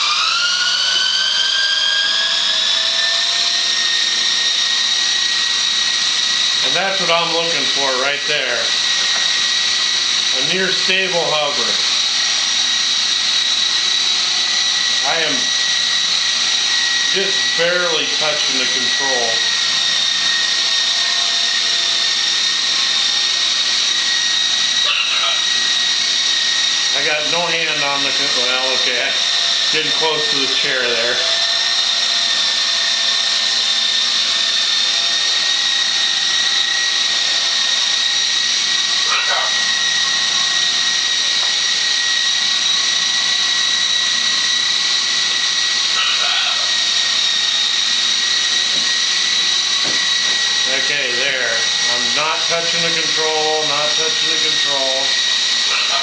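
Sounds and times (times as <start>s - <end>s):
model helicopter whine: 0.0s - 56.0s.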